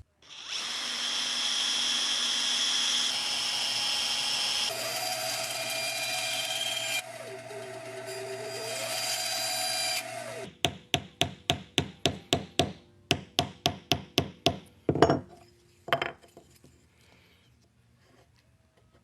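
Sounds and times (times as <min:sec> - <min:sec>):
power tool running: 0:00.2 - 0:10.5
hammer tapping on wood: 0:10.6 - 0:15.2.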